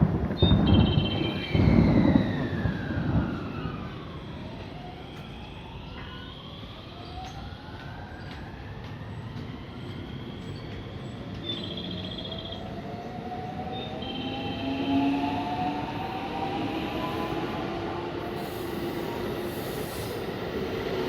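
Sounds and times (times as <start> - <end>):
wheels rumbling on rails: 0.0 - 21.0.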